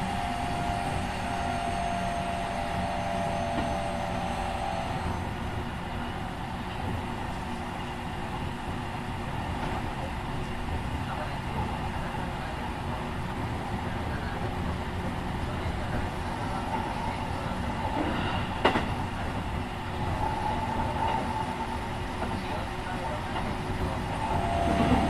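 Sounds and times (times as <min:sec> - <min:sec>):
electric train traction whine: 0:00.0 - 0:05.7, 0:23.8 - 0:25.0
wheels rumbling on rail: 0:00.0 - 0:25.0.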